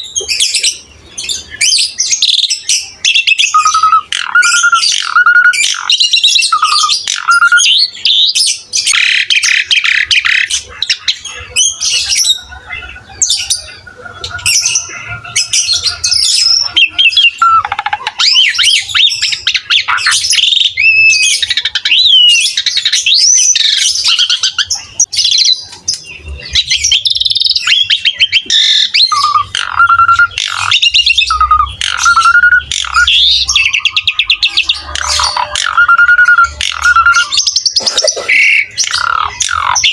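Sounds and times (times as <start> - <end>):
starling song: 28.3 - 39.9.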